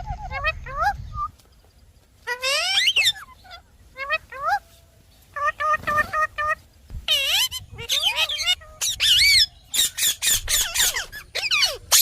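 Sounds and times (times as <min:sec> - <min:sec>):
parrot chattering and whistling: 0:07.1 - 0:12.0.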